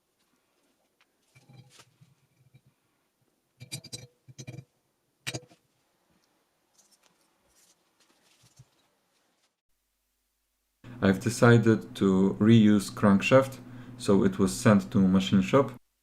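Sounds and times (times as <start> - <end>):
soft handling rustle: 0.0 - 3.0, 5.6 - 9.6.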